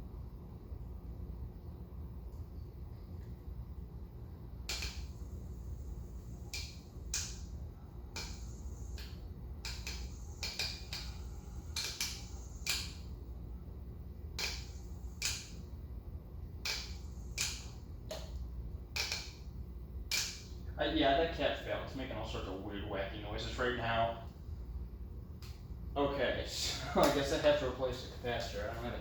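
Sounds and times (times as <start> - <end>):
ceiling fan humming: 0.0 - 29.0
sharp clicks and crackles: 8.1 - 13.0, 16.6 - 19.4.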